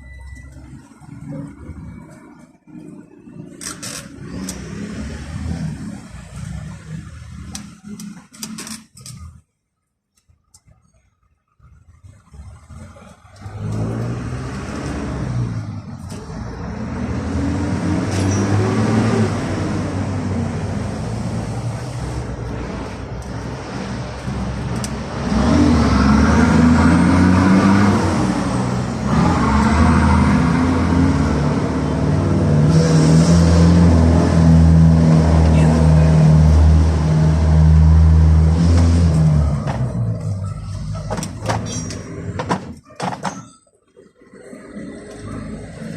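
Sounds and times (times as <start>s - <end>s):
car engine revving: 11.9s - 42.2s.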